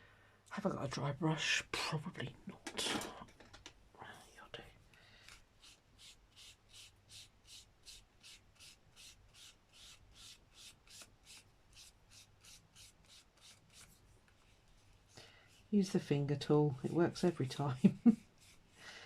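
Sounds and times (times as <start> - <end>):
paintbrush scrubbing on paper: 5.6 - 15.9, 16.7 - 18.8.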